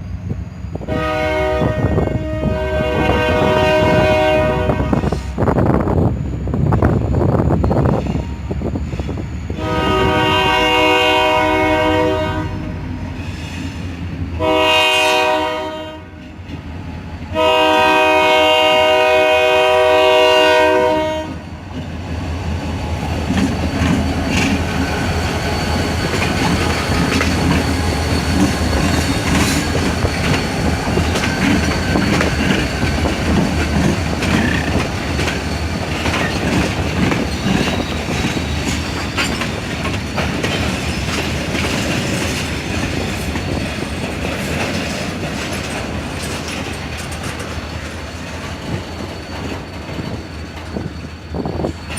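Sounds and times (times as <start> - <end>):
locomotive air horn blasts: 0.8 - 5.4, 9.5 - 12.9, 14.4 - 16.3, 17.3 - 21.6
train wheels clacking over rail joints: 22.7 - 51.9.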